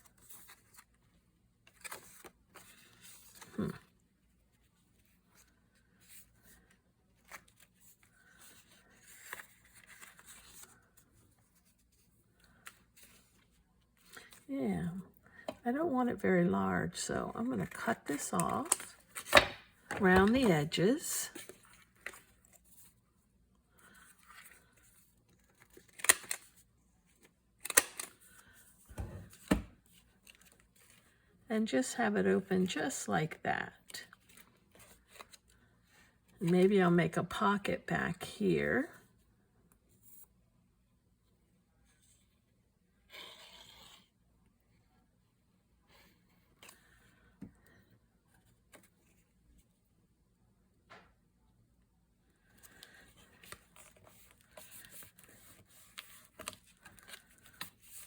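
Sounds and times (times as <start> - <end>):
paper rustling: 52.6 - 58.0.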